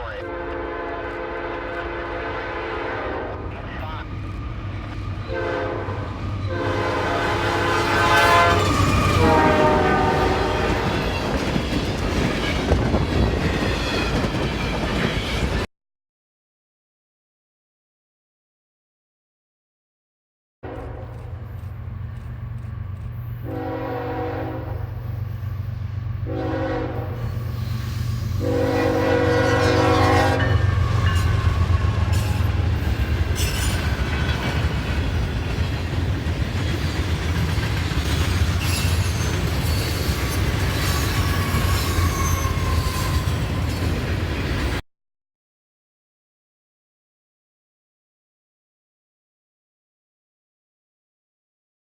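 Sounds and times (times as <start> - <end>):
train air horn: 0.0 - 3.6, 5.3 - 11.0, 20.6 - 21.4, 23.4 - 25.5, 26.2 - 32.8
train engine rumbling: 0.0 - 15.7, 20.7 - 44.8.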